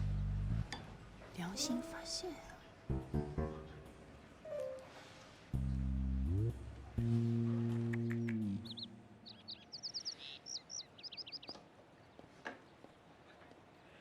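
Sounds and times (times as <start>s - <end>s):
held low musical notes: 0.0s - 9.4s
small birds chirping: 7.7s - 14.0s.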